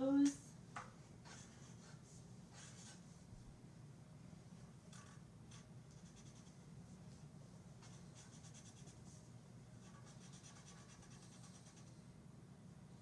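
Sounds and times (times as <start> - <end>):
low room hum: 0.0 - 13.0
drawing tool scratching paper: 1.2 - 3.0, 5.5 - 6.5, 9.8 - 12.0.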